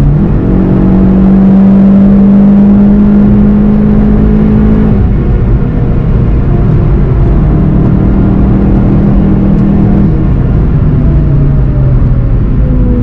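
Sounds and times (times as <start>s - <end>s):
car engine at high speed: 0.0s - 13.0s
wind and road noise: 0.0s - 13.0s.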